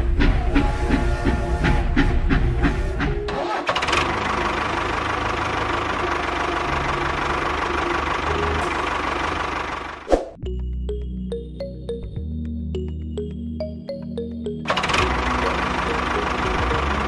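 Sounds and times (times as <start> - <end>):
engine running: 0.0 - 10.1, 14.2 - 17.0.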